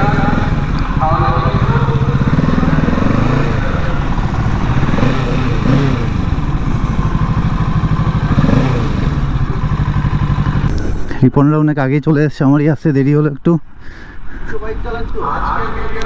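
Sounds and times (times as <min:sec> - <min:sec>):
motorcycle engine throbbing: 0:00.0 - 0:11.4.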